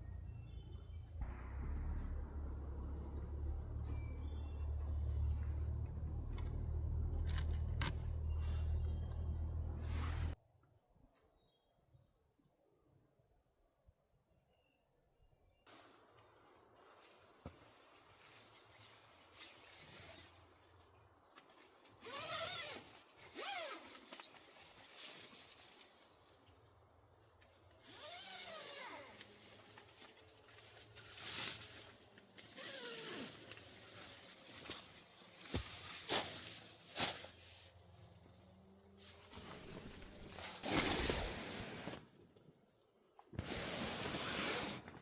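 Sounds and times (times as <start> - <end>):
zipper being pulled: 22.0 - 24.2, 32.4 - 33.6
fabric and gear rustling: 39.0 - 42.0.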